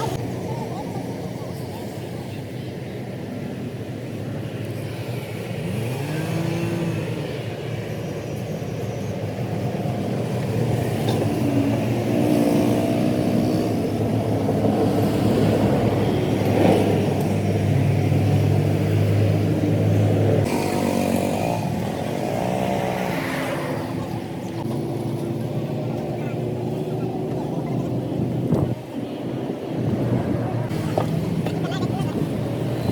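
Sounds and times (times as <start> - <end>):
vehicle engines passing: 0.0 - 32.9.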